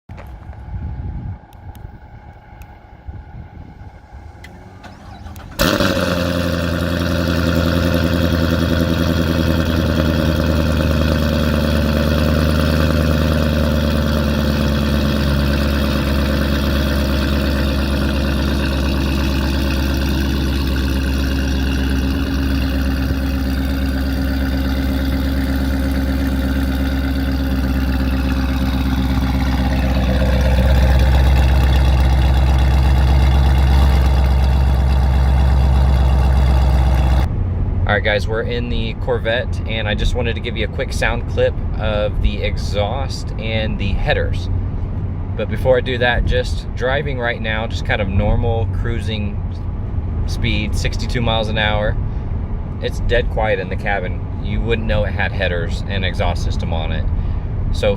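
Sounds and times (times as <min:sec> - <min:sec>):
car engine starting and idling: 0:00.0 - 0:57.9
low exhaust rumble: 0:00.0 - 0:57.9.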